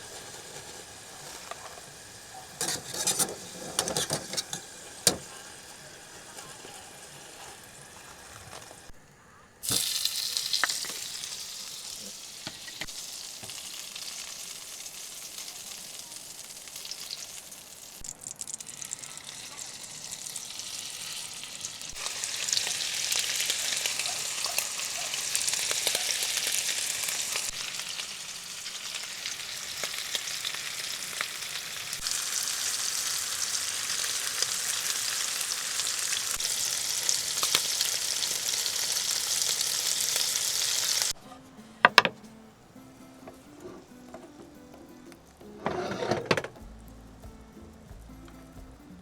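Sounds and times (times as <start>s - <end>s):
food sizzling in a pan: 0.0s - 9.0s, 9.6s - 41.2s.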